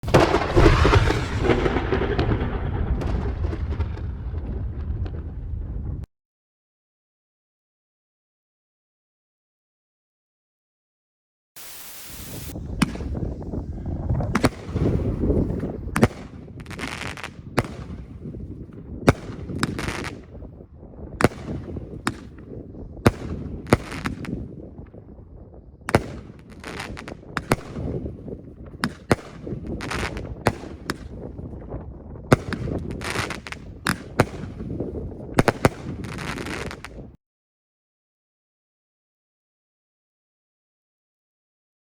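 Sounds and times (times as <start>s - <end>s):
fireworks cake firing shots: 0.0s - 5.4s, 11.6s - 13.6s, 14.2s - 20.5s, 21.2s - 25.0s, 25.9s - 31.4s, 32.3s - 37.2s
hissing fizz and crackle: 0.1s - 3.8s, 11.6s - 15.5s.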